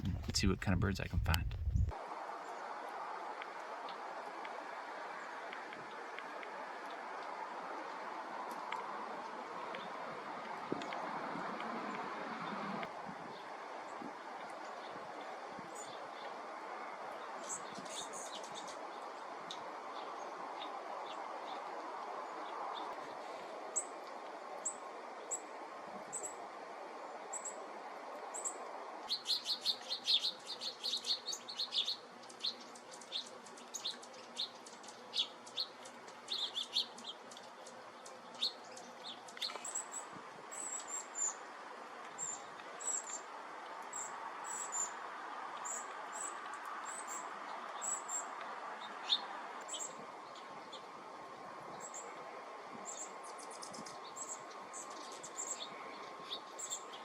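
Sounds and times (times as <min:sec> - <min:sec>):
small birds chirping: 0:00.0 - 0:01.9, 0:28.3 - 0:50.9, 0:51.7 - 0:52.1, 0:52.8 - 0:57.0.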